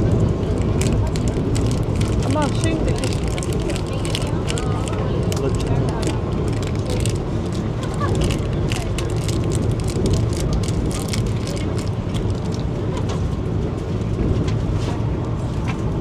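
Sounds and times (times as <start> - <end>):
train cabin rumble: 0.0 - 16.0
small rattles and clicks: 0.5 - 12.7.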